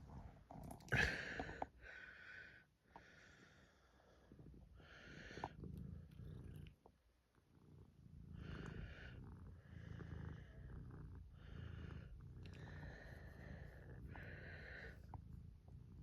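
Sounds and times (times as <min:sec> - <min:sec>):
cat purring: 0:00.0 - 0:01.6, 0:04.1 - 0:16.0.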